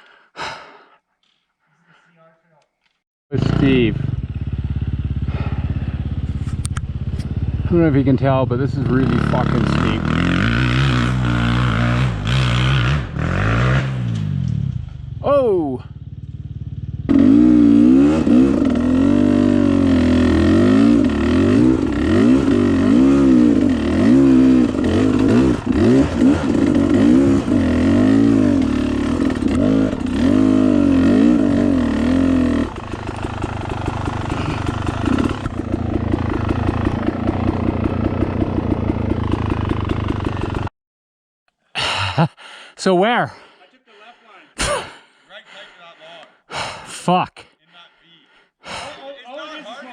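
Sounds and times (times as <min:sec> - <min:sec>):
dirt bike engine revving: 0:03.3 - 0:40.7.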